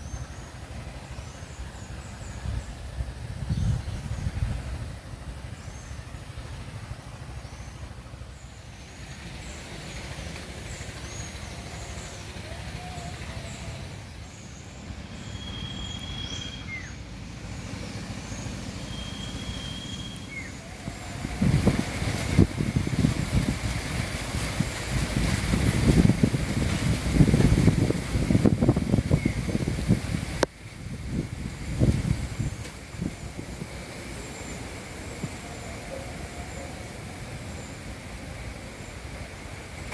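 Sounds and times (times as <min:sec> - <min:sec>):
wild birds chirping: 0:00.0 - 0:24.5, 0:28.5 - 0:30.0, 0:31.8 - 0:39.9
low buffeting: 0:00.0 - 0:39.9
bird whistles: 0:15.2 - 0:17.0, 0:18.8 - 0:21.2.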